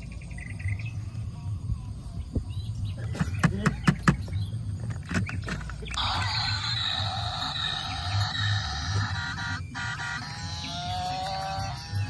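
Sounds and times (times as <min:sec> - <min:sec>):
low steady hum: 0:00.0 - 0:12.0
sharp clicks and knocks: 0:03.1 - 0:06.0.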